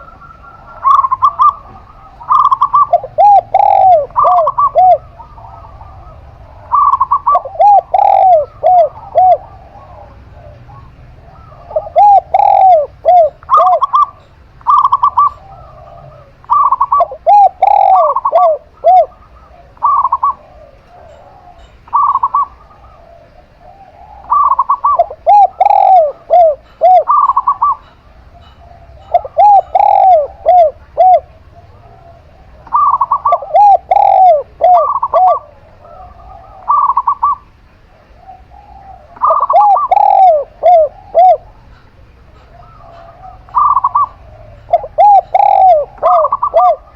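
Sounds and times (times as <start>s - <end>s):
doves cooing: 0.0s - 46.9s.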